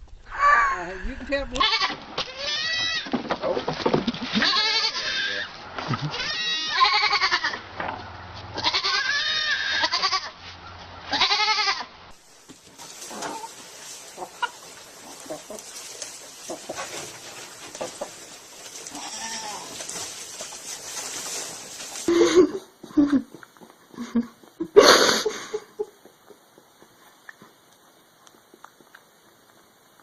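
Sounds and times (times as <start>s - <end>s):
goat bleating: 1.6s - 3.1s, 4.3s - 7.6s, 8.6s - 10.4s, 11.1s - 11.9s, 18.9s - 20.0s.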